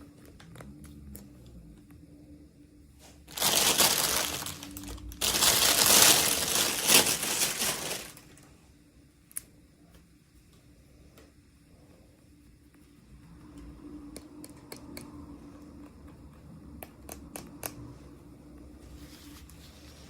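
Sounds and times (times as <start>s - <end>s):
packaging crinkling: 3.3s - 8.4s.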